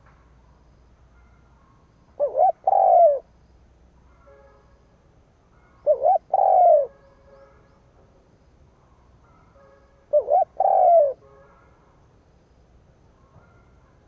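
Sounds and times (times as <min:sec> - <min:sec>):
dove cooing: 0:02.2 - 0:03.3, 0:05.8 - 0:07.0, 0:10.1 - 0:11.2.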